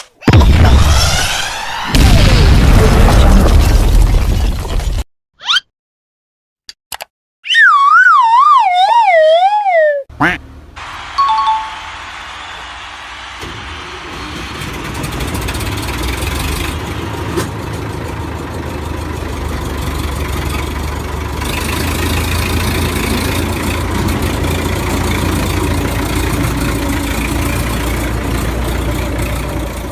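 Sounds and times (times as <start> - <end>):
vehicle engine humming: 10.1 - 11.2, 11.8 - 29.9.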